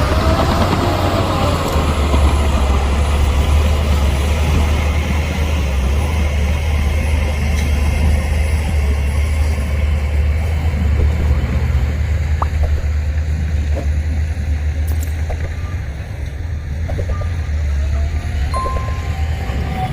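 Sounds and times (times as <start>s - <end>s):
diesel engine running: 0.0s - 19.9s
whine falling in pitch: 16.9s - 19.6s.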